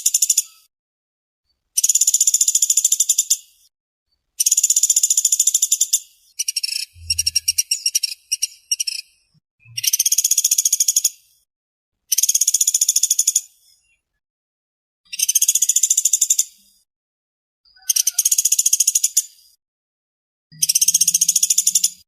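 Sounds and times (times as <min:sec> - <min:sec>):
woodpecker rattling trills: 0:04.5 - 0:09.0
low hum: 0:07.0 - 0:07.6.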